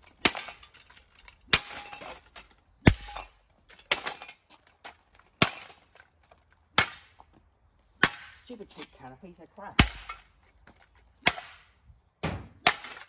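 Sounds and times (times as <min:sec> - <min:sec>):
fragments clinking and rattling: 0:00.0 - 0:06.2.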